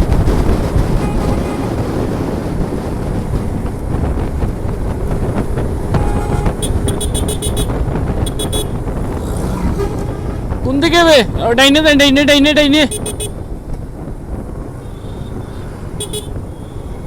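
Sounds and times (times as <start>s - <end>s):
motorcycle engine rumble: 0.0s - 17.0s
wind on microphone: 0.0s - 17.0s
vehicle horn short high beeps: 6.0s - 10.7s.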